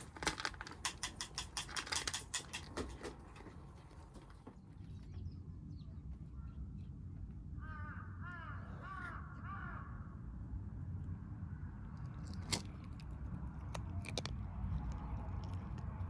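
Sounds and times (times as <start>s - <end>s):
crow cawing: 7.6s - 10.2s.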